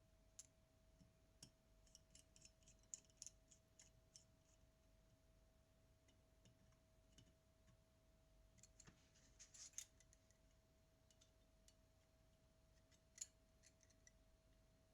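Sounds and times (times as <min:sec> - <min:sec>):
faint steady hum: 0:00.0 - 0:14.9
light clicks and metallic taps: 0:06.0 - 0:07.8, 0:11.1 - 0:11.8.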